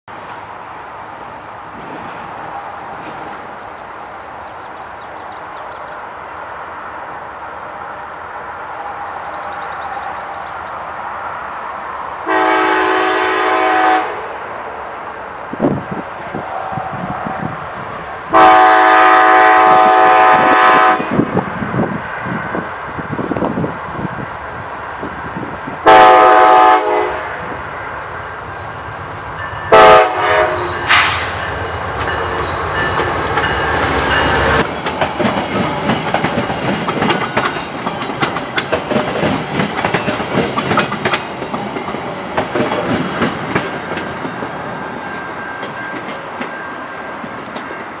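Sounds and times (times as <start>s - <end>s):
locomotive rumbling past: 0.1s - 48.0s
locomotive air horn blasts: 12.3s - 14.2s, 18.3s - 21.2s, 25.8s - 27.5s, 29.7s - 31.5s
cars clattering over rail joints: 31.4s - 44.4s.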